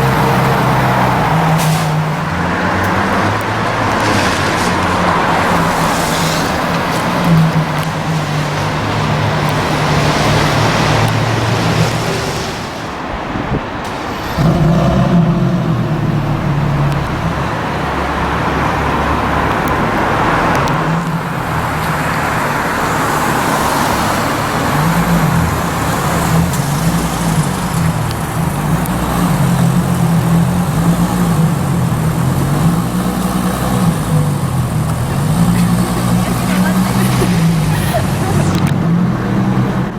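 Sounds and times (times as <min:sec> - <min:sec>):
road traffic noise: 0:00.0 - 0:39.9
car engine at low revs: 0:14.2 - 0:39.9.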